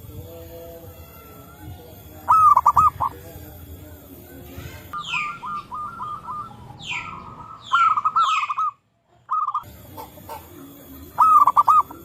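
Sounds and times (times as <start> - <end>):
doves cooing: 1.4 - 3.2, 4.6 - 12.0
bird chirping: 1.8 - 3.2, 4.7 - 12.0.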